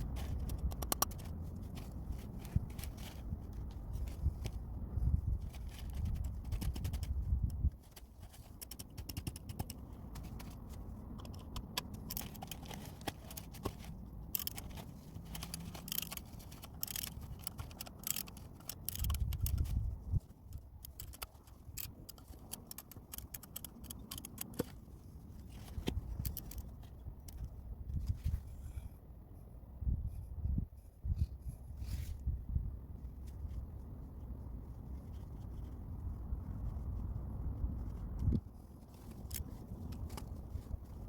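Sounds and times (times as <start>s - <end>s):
tools clicking and scraping: 0.0s - 4.6s, 5.4s - 28.9s, 37.9s - 41.0s.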